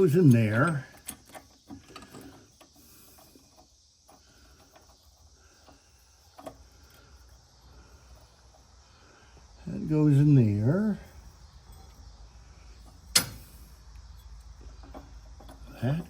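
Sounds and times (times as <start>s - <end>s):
small metal parts clicking: 0.0s - 7.4s, 12.8s - 16.0s.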